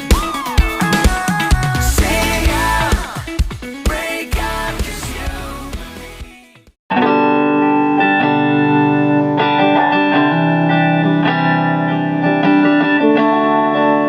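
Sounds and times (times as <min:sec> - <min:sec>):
music: 0:00.0 - 0:14.0
electric guitar ringing chords: 0:06.9 - 0:14.0.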